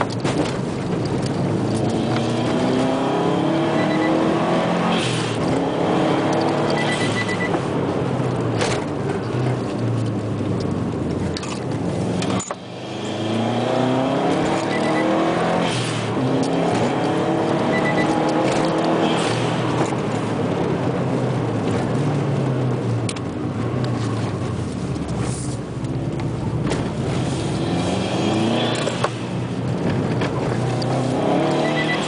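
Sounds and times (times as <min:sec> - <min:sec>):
car engine revving: 0:00.0 - 0:32.0
road and tyre noise: 0:00.0 - 0:32.0.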